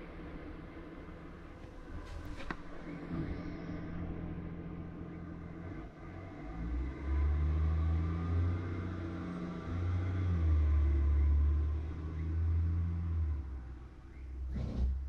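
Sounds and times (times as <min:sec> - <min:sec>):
car driving rumble: 0:00.0 - 0:15.0.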